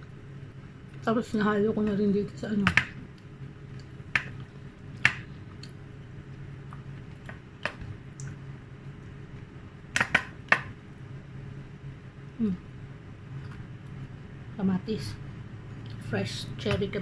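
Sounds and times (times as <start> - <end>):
faint steady hum: 0.0 - 17.0
person eating with wet smacks: 2.8 - 8.4.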